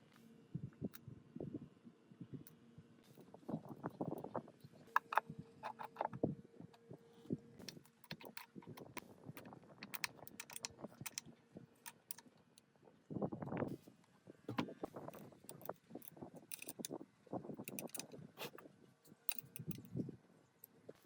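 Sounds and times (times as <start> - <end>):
metal parts clinking and knocking: 5.0 - 6.2, 7.7 - 11.2, 11.8 - 12.2, 14.5 - 17.0, 17.6 - 18.6, 19.2 - 19.9.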